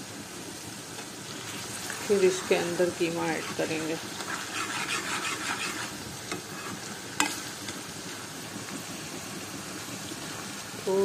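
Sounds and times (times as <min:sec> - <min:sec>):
food sizzling in oil: 0:00.0 - 0:11.0
steel ladle scraping pan: 0:02.2 - 0:07.4.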